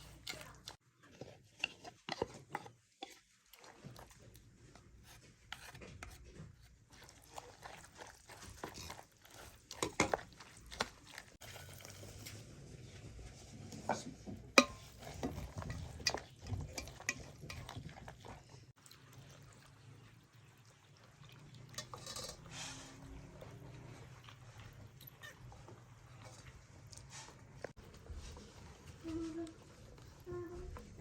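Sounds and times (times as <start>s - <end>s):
utensils scraping pots: 13.5s - 18.7s, 21.7s - 24.0s
dishes clinking: 14.6s - 17.8s.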